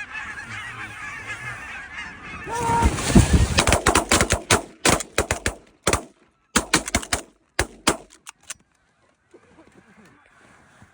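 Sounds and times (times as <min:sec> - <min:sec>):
shotgun shots: 0:03.5 - 0:08.6.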